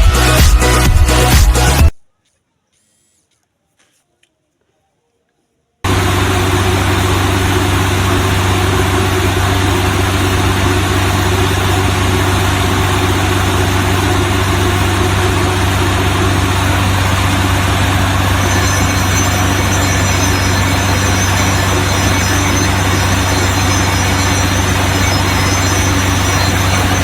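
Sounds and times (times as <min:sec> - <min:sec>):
faint high whine: 0:05.9 - 0:27.0
small motor humming and whirring: 0:05.9 - 0:27.0.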